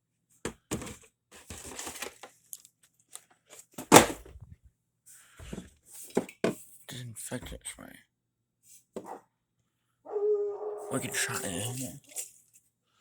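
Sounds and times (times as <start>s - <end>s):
household items knocking and clattering: 0.5s - 2.2s, 3.8s - 4.6s.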